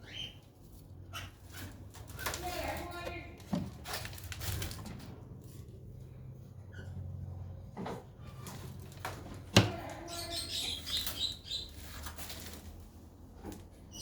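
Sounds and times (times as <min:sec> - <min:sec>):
small birds chirping: 0:00.0 - 0:03.3, 0:09.5 - 0:12.7, 0:13.7 - 0:14.0.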